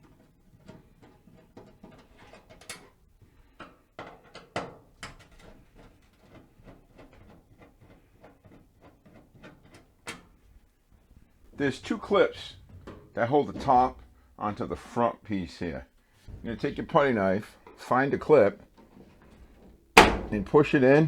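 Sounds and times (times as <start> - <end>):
sharp knocks: 20.0 - 20.7.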